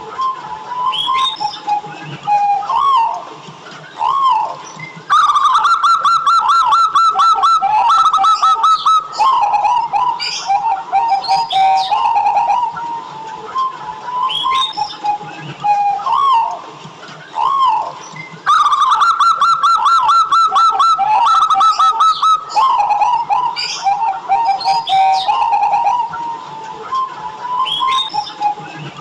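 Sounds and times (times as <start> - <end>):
dove cooing: 0.0 - 3.2, 3.9 - 29.0.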